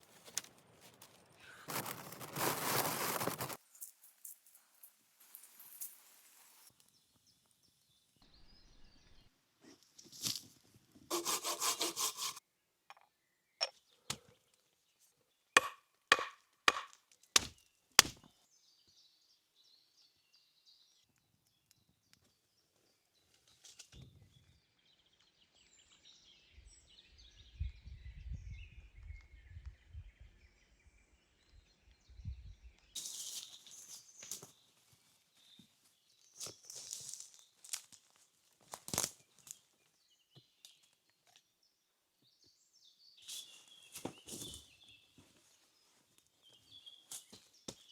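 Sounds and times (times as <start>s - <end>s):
hand sawing wood: 11.1s - 12.4s
chopping strikes on wood: 15.6s - 18.3s.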